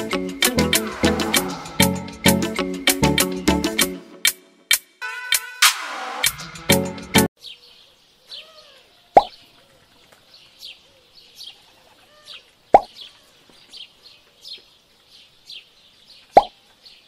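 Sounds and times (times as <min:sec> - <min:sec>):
bird chirps: 0:07.4 - 0:17.0.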